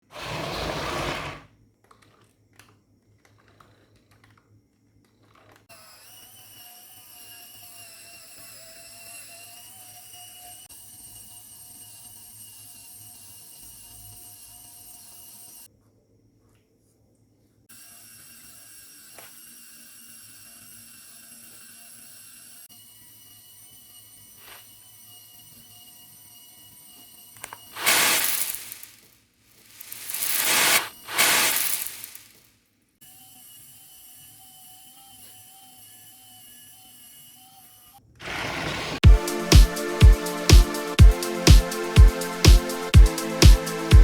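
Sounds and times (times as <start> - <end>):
small electric motor whining: 5.7 - 15.7, 17.7 - 38.0
brief noisy burst: 27.8 - 29.1, 29.7 - 32.4.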